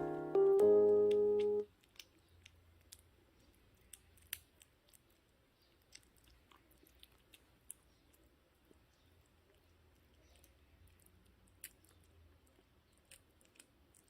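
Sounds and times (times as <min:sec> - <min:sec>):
piano music: 0:00.0 - 0:01.7
kitten chewing food: 0:00.1 - 0:14.0.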